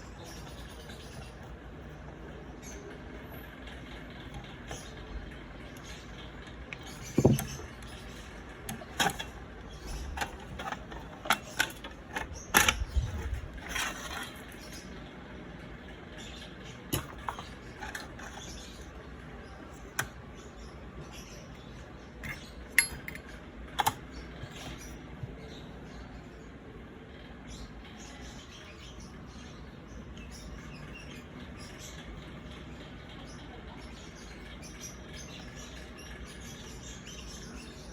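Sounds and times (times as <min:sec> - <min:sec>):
metal parts and tools clicking: 0:06.7 - 0:14.6, 0:16.9 - 0:18.9, 0:22.2 - 0:24.1.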